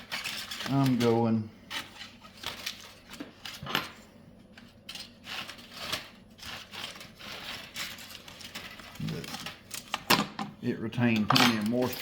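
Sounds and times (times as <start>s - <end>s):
aluminium foil crinkling: 0.0s - 3.6s, 4.4s - 10.1s.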